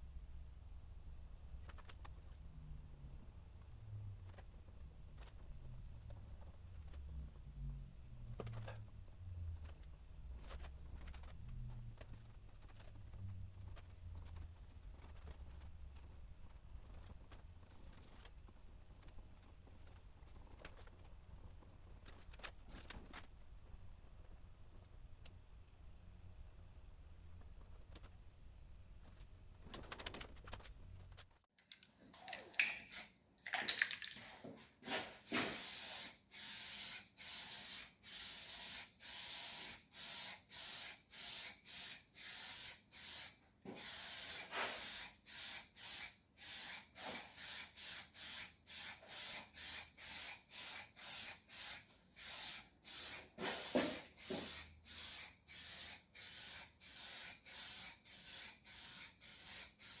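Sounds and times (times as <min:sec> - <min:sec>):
aerosol spray can hissing: 0:35.2 - 1:00.0.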